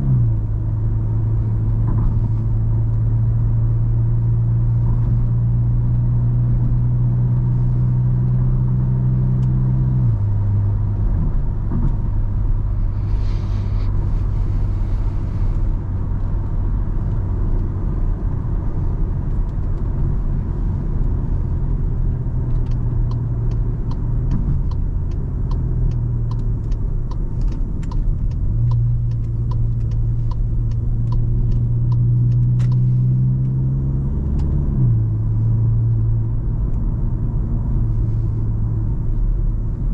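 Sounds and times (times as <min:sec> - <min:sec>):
car engine hum: 0:00.0 - 0:39.9
road noise: 0:00.0 - 0:39.9
regular ticking: 0:22.7 - 0:32.9.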